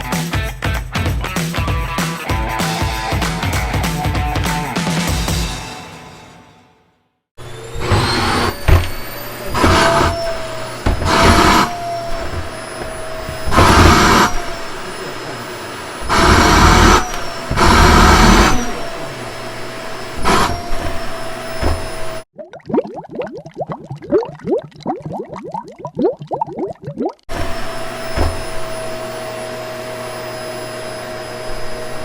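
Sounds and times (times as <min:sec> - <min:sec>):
vacuum cleaner running: 0:07.4 - 0:22.3, 0:27.3 - 0:32.0.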